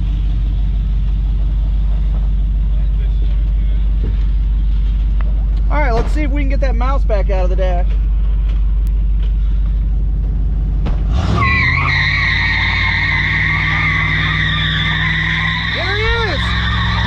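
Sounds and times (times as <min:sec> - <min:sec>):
car engine idling and revving: 0:00.0 - 0:17.0
tyres squealing: 0:11.2 - 0:17.0.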